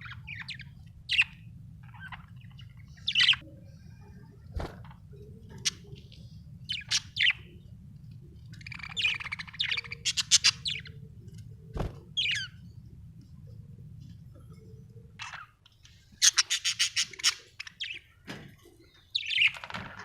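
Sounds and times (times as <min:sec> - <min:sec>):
budgerigars chirping and squawking: 0:00.0 - 0:03.4, 0:05.2 - 0:07.6, 0:08.5 - 0:11.1, 0:12.1 - 0:12.6, 0:15.2 - 0:18.2, 0:19.0 - 0:20.0
steady low hum: 0:00.0 - 0:19.4.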